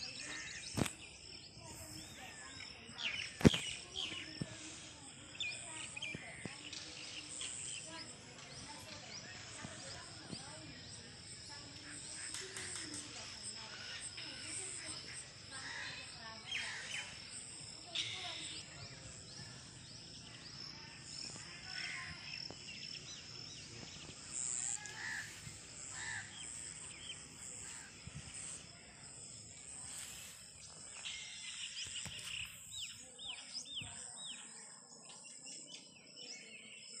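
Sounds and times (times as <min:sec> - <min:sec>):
birds chirping and calling: 0:00.0 - 0:37.0
constant high hiss: 0:03.0 - 0:33.9.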